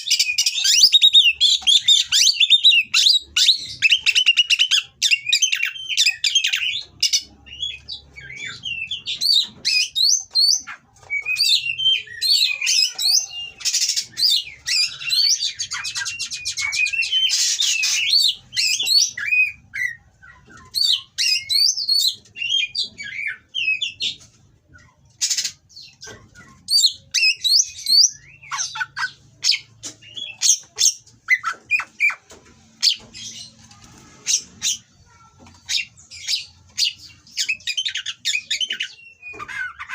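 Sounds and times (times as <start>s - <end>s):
magpie-robin singing: 0.0s - 24.2s, 24.8s - 39.9s.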